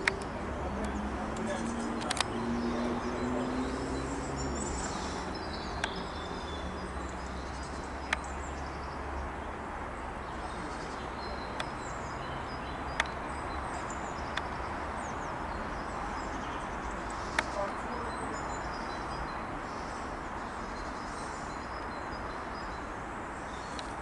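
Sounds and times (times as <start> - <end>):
sharp clicks: 0.0 - 2.4
small birds chirping: 0.0 - 24.0.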